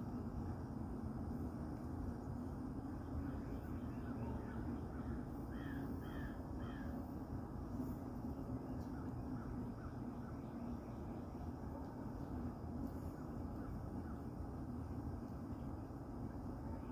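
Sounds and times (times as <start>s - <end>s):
crow cawing: 5.0s - 7.0s.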